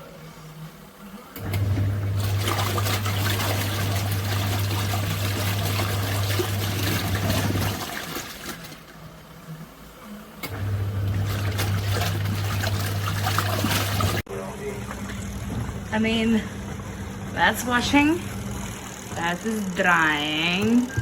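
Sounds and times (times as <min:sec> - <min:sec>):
washing machine motor hum: 0:00.0 - 0:21.0
water sloshing and trickling: 0:01.4 - 0:09.2, 0:10.6 - 0:15.9.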